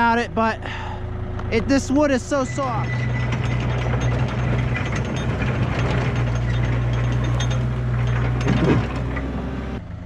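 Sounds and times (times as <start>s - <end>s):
excavator diesel engine droning: 0.0s - 10.0s
metal parts clanking and rattling: 2.2s - 9.8s.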